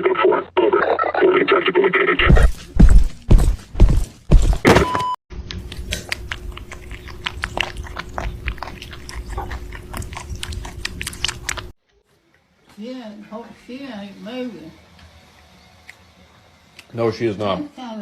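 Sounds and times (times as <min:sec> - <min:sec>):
heavy thumps: 0:02.2 - 0:05.0
cat chewing crunchily: 0:05.5 - 0:11.8.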